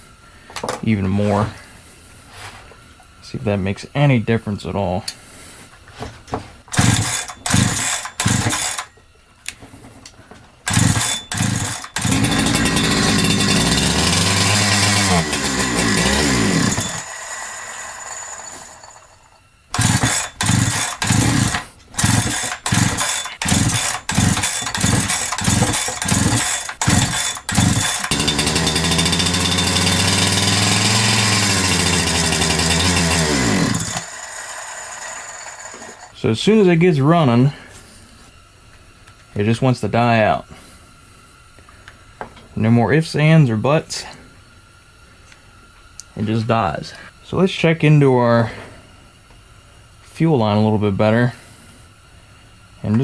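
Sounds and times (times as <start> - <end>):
chainsaw engine running unevenly: 6.7 - 8.9, 10.7 - 36.2
starter cord pulls: 6.7 - 8.9, 10.7 - 36.1.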